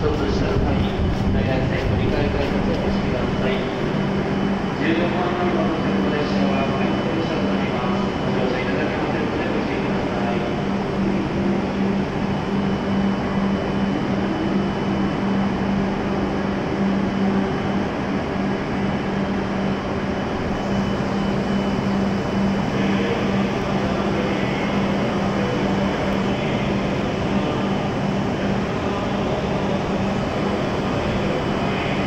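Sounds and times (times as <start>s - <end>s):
air-conditioning rush: 0.0s - 32.0s
faint high whine: 0.0s - 32.0s
train equipment hum: 0.0s - 32.0s.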